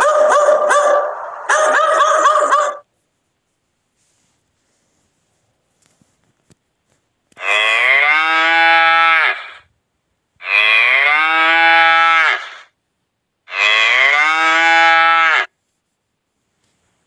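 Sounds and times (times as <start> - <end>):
cow mooing: 7.4 - 9.6, 10.4 - 12.6, 13.5 - 15.5.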